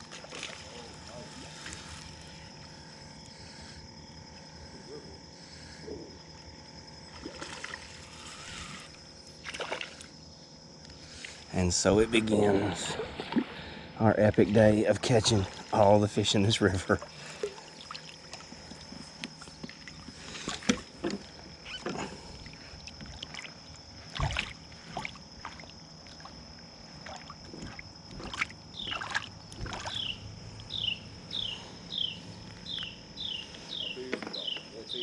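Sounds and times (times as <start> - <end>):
water sloshing: 0.0 - 2.5, 7.0 - 10.2, 12.6 - 30.7
insect drone: 0.0 - 35.0
bird chirping: 28.7 - 29.1, 29.8 - 35.0.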